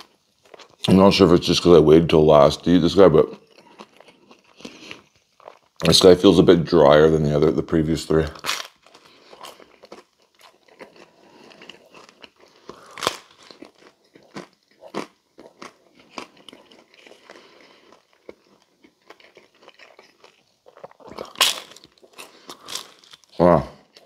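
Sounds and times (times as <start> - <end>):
person chewing crisp food: 0.0 - 1.2, 2.6 - 5.9, 8.3 - 24.0
crust cracking: 8.1 - 24.0.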